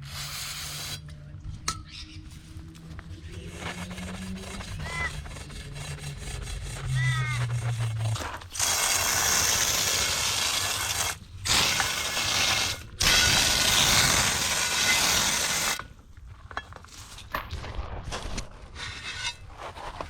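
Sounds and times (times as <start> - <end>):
power tool running in bursts: 8.5 - 15.8.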